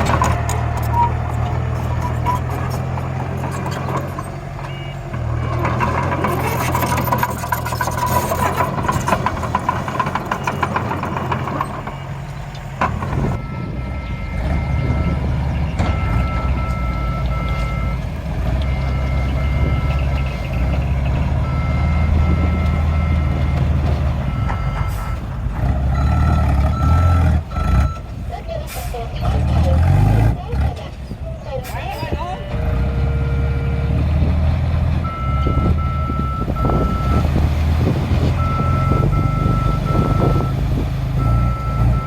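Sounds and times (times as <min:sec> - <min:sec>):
truck engine hum: 0:00.0 - 0:42.0
two-tone reversing alarm beeps: 0:13.4 - 0:15.2, 0:35.0 - 0:37.2, 0:38.4 - 0:40.6, 0:41.2 - 0:42.0.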